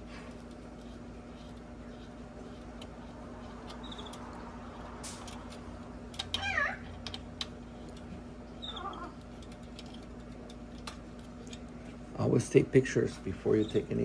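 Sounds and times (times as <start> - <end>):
steady hum: 0.0 - 14.0
cat meowing: 6.4 - 6.9, 8.6 - 9.2.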